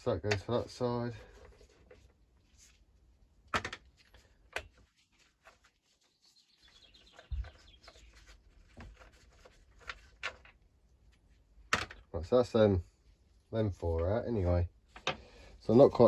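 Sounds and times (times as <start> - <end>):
faint high chirp: 5.8 - 8.4.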